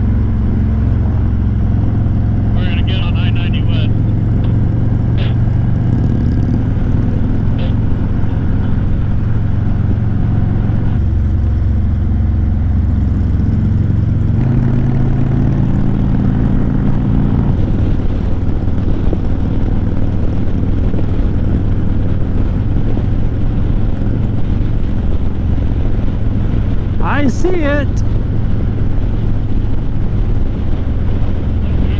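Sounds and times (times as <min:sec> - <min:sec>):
motorcycle engine rumbling: 0:01.1 - 0:12.0.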